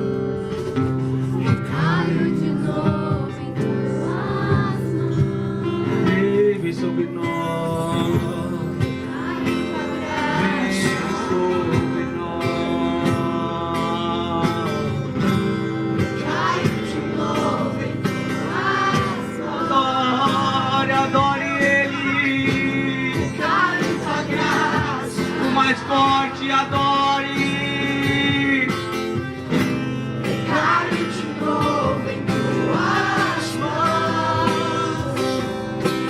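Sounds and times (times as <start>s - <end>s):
acoustic guitar: 0.0s - 36.0s.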